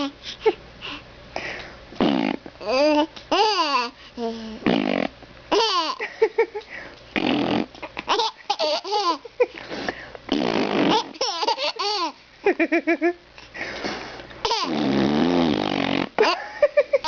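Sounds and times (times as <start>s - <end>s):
baby laughing: 2.7s - 4.0s, 5.5s - 6.2s, 7.7s - 9.6s, 10.8s - 13.0s, 14.4s - 14.8s, 16.2s - 17.0s.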